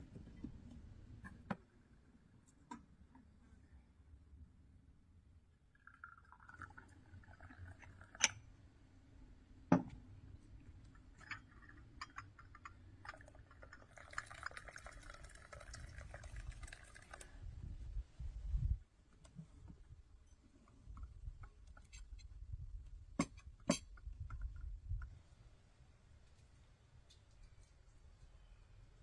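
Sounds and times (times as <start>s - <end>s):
liquid being poured: 5.7s - 8.5s, 10.9s - 17.5s.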